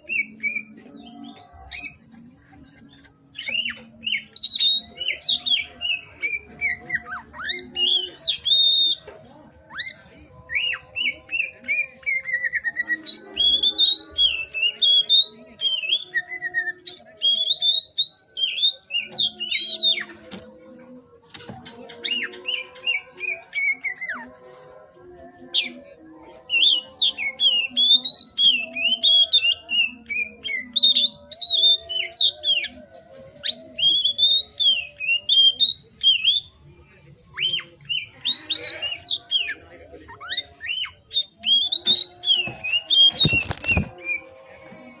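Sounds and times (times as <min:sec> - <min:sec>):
bird singing whistled phrases: 0:03.3 - 0:09.0, 0:37.3 - 0:44.3.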